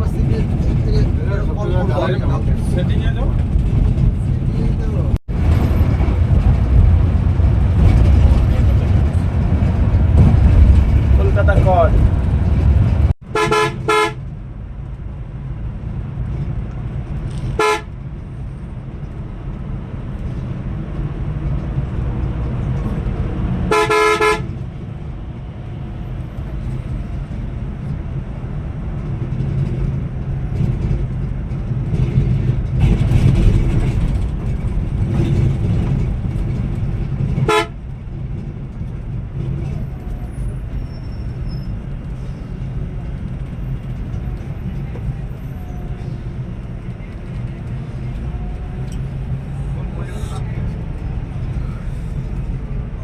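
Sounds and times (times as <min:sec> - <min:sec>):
coach engine drone: 0:00.0 - 0:53.0
vehicle horn: 0:13.3 - 0:14.2, 0:17.5 - 0:17.9, 0:23.7 - 0:24.6, 0:37.4 - 0:37.8.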